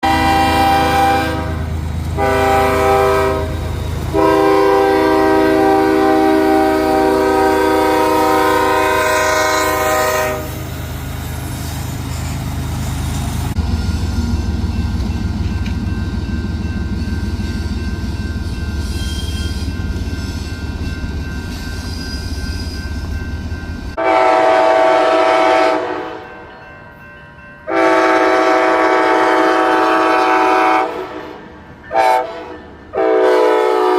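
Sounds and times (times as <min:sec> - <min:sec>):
locomotive air horn blasts: 0:00.0 - 0:10.7, 0:24.0 - 0:26.3, 0:27.7 - 0:33.9
train clickety-clack on rails: 0:00.1 - 0:33.9.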